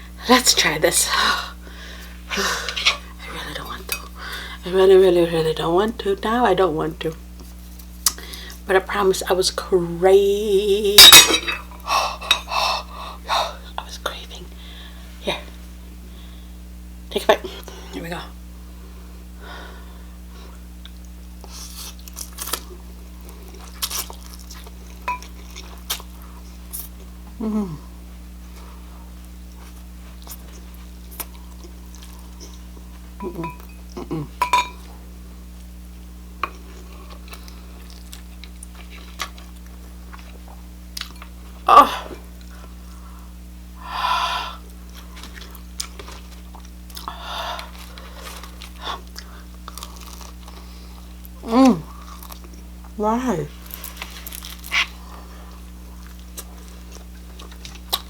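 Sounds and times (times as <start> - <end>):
person chewing crunchy food: 20.5 - 27.2, 28.5 - 35.7, 36.5 - 41.6, 44.6 - 58.0.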